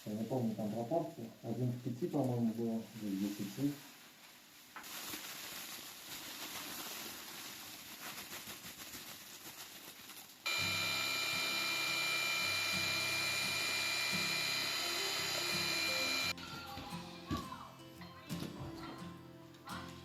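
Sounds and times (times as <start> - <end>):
background music with held tones: 10.5 - 20.0.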